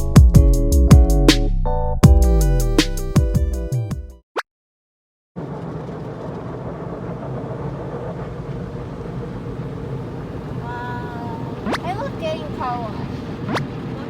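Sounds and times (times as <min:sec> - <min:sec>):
vehicle rumble: 0:05.4 - 0:14.0.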